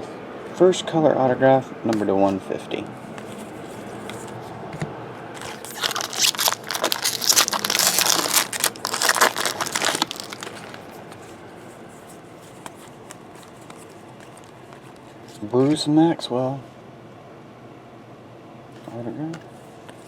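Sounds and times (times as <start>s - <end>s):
plastic wrapper tearing and crinkling: 5.4s - 11.0s
faint handling: 5.4s - 15.8s.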